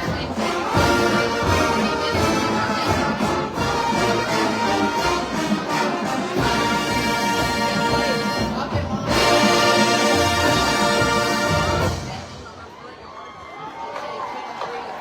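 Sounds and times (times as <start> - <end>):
brass playing a tune: 0.0 - 12.5
steady drum beat: 0.0 - 12.6.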